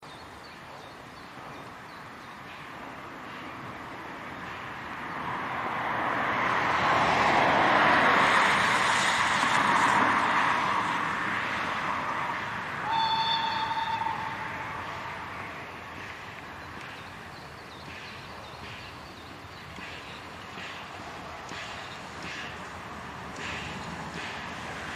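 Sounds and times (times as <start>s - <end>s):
steam locomotive running past: 0.1s - 24.9s
steam whistle blast: 12.8s - 14.8s.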